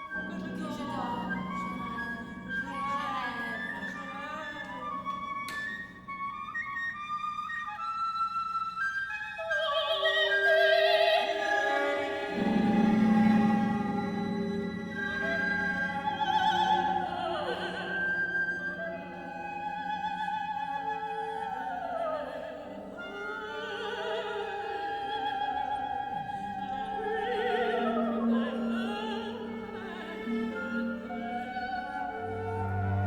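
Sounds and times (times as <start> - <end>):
orchestral accompaniment: 0.0 - 6.8, 10.8 - 21.3, 22.9 - 33.0
operatic singing: 9.8 - 33.0.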